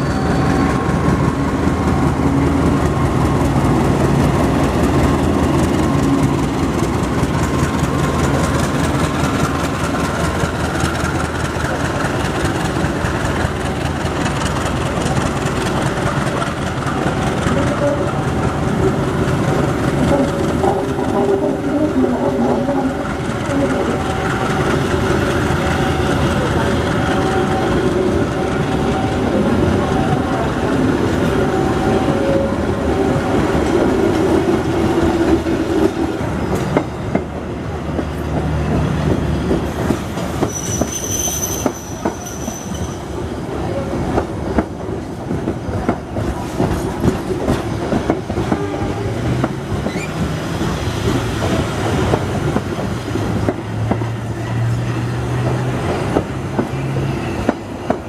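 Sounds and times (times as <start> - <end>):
train wheels clattering over rails: 0.3 - 58.0
high-pitched wheel squeal: 40.4 - 43.1.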